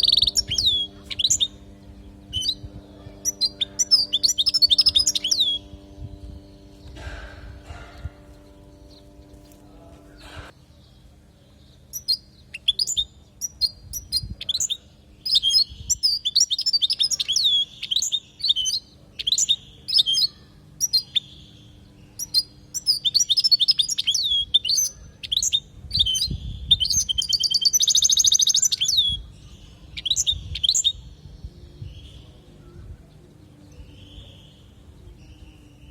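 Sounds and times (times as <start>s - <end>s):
bird rattling trill: 0.0s - 9.6s
goldfinch singing: 0.0s - 10.5s, 11.9s - 35.9s.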